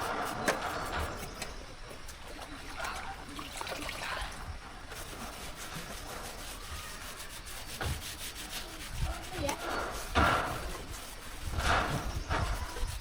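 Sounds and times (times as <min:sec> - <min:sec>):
hand tool scraping a surface: 0:00.0 - 0:02.2, 0:04.8 - 0:13.0.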